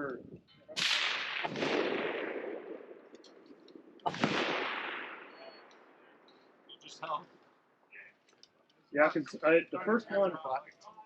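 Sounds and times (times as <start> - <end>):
rifle shots with echo: 0.7 - 6.2.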